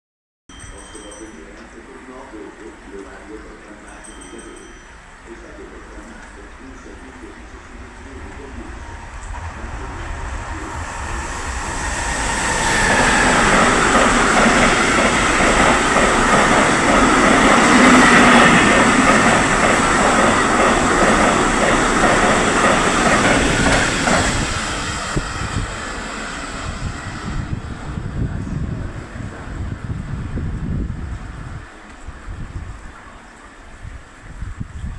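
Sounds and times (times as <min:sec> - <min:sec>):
high whine: 0:00.5 - 0:21.0
train passing: 0:00.5 - 0:34.5
wheels clattering over rails: 0:12.8 - 0:24.4.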